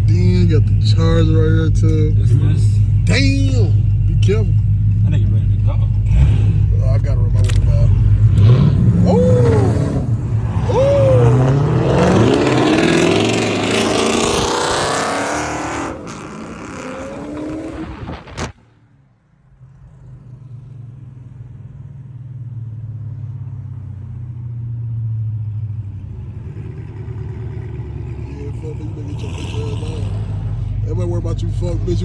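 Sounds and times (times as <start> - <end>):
car engine revving: 0.0 - 18.6, 25.6 - 32.0.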